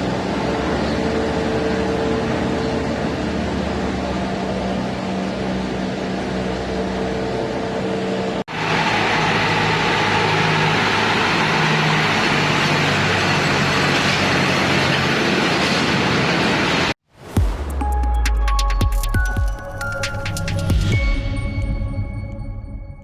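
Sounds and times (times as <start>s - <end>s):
engine noise with rushing sound: 0.0s - 18.1s.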